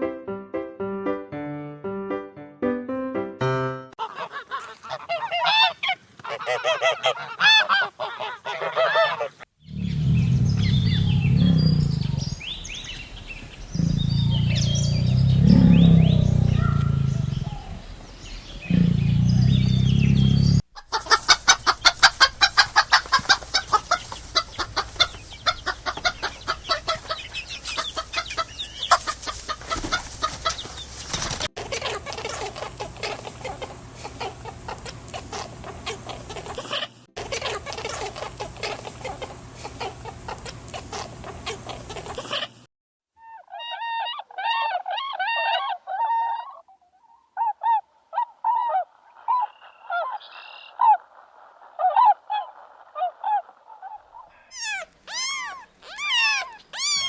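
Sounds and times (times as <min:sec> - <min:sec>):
wings flapping: 0:04.0 - 0:09.4, 0:20.8 - 0:36.6, 0:54.6 - 0:57.0
hens clucking: 0:04.0 - 0:09.5, 0:20.7 - 0:42.6, 0:48.6 - 0:57.0
long low animal calls: 0:04.0 - 0:12.3, 0:13.7 - 0:18.0, 0:18.6 - 0:30.8, 0:43.2 - 0:57.0
animal calls bending in pitch: 0:20.8 - 0:31.5, 0:50.7 - 0:57.0.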